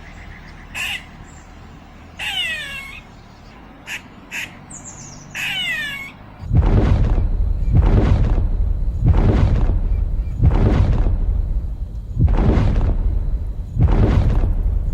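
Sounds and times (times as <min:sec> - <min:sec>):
harsh bird squawks: 0:00.0 - 0:01.3, 0:02.2 - 0:03.1, 0:03.9 - 0:06.2
loud low rumbling: 0:06.4 - 0:14.9.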